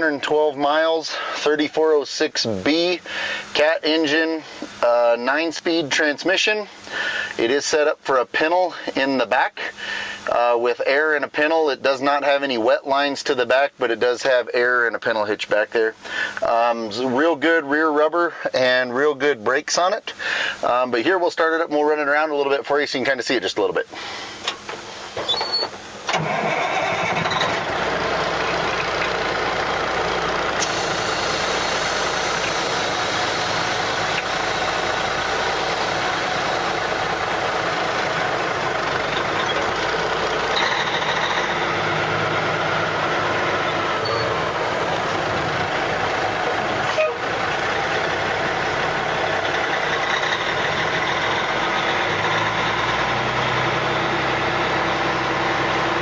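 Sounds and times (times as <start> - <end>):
diesel engine cranking and starting: 0.0 - 7.6, 23.9 - 56.0.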